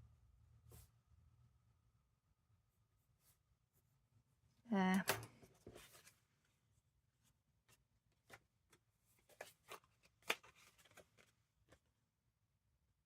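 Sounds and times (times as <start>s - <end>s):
paper and card tapping and rustling: 7.6s - 11.9s.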